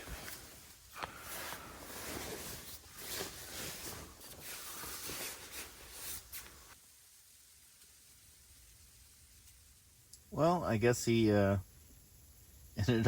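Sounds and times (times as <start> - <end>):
bedding rustling: 0.0 - 6.8
faint low background noise: 0.0 - 13.0.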